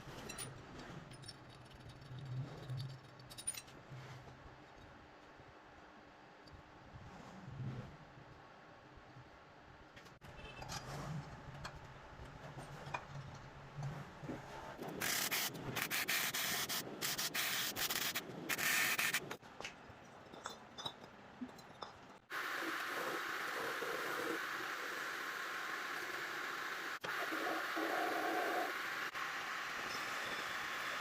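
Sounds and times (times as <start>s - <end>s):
steady hiss: 22.3s - 31.0s.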